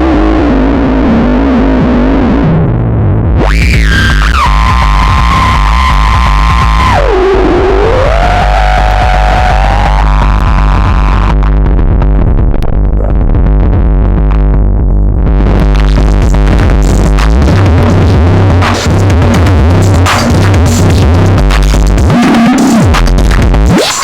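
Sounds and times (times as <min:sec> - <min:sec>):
rising filter sweep: 0:00.0 - 0:21.5
bass-heavy synthesizer sequence: 0:00.0 - 0:24.0
rhythmic percussive hits: 0:10.4 - 0:24.0.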